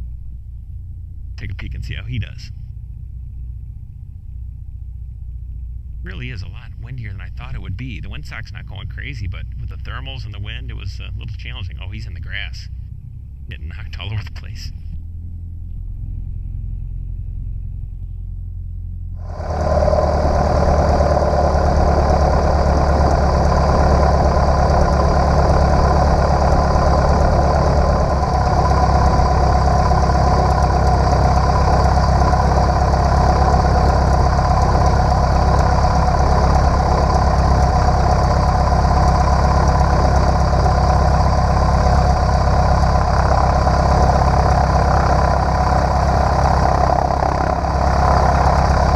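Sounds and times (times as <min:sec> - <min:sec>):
small plane engine droning: 0:00.0 - 0:48.9
rushing air noise: 0:19.2 - 0:48.9.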